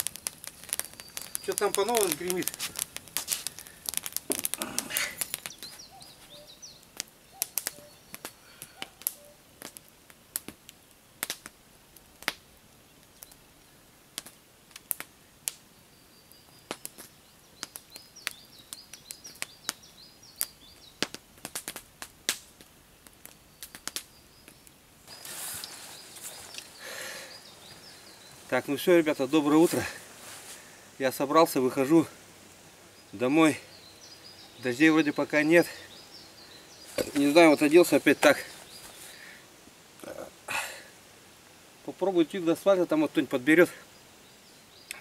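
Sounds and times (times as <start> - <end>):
faint bird chirps: 0.6 - 2.5, 4.6 - 9.5, 23.4 - 30.0, 32.9 - 39.4.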